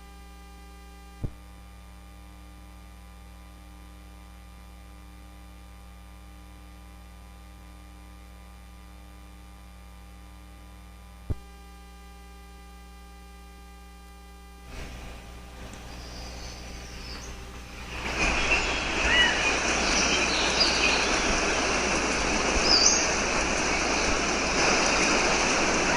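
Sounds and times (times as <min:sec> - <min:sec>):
electrical mains hum: 0:00.0 - 0:25.9
rushing noise: 0:14.7 - 0:25.9.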